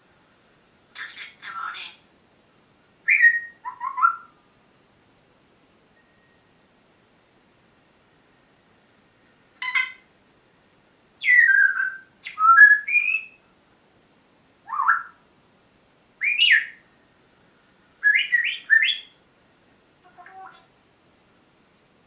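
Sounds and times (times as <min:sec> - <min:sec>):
parrot whistles and squawks: 0:03.1 - 0:04.4, 0:11.2 - 0:13.4, 0:14.7 - 0:15.2, 0:16.2 - 0:16.8, 0:18.0 - 0:19.2.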